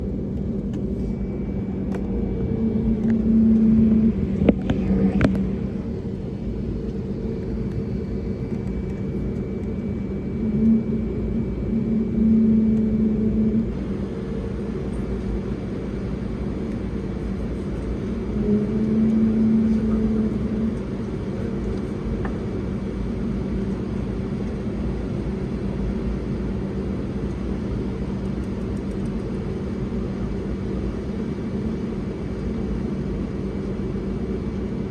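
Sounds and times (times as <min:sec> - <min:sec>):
jet engines rumbling: 0:00.0 - 0:34.9.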